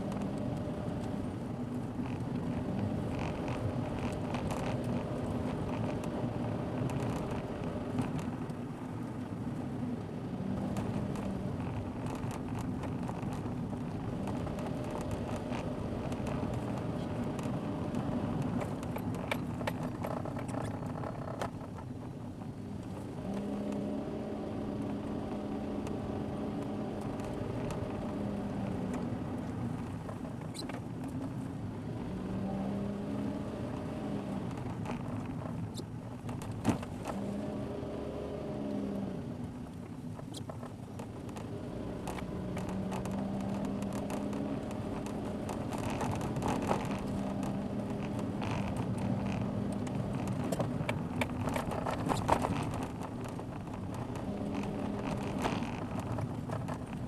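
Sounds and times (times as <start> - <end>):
car engine inside cabin: 0.0 - 57.0
road noise: 0.0 - 57.0
small clicks: 39.6 - 57.0.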